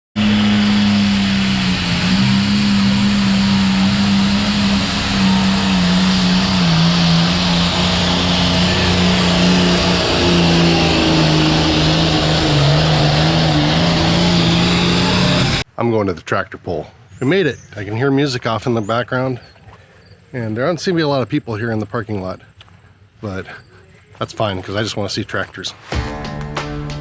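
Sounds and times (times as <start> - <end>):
truck engine and road hum: 0.2 - 15.8.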